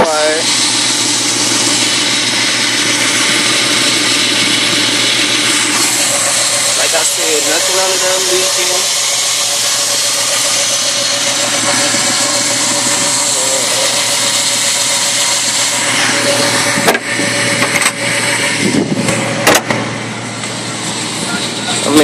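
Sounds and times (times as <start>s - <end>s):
car engine idling: 0.0s - 22.0s
sharp knocks: 19.0s - 19.9s.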